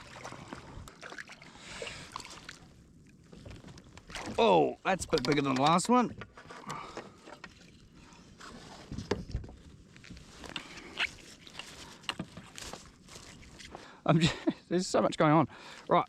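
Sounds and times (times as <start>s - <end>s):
water sloshing against kayak: 0.0s - 14.0s
light knocks and clicks on hull: 3.2s - 13.8s.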